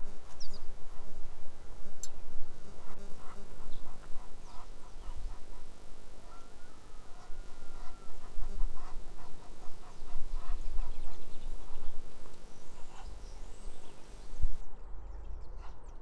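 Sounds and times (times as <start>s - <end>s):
birds calling: 2.0s - 14.6s.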